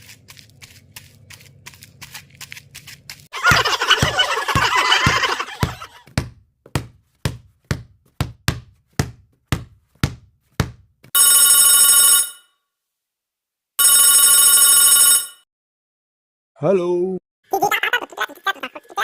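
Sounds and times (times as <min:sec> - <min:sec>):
electronic telephone ringing: 0:11.2 - 0:12.5, 0:13.8 - 0:15.4.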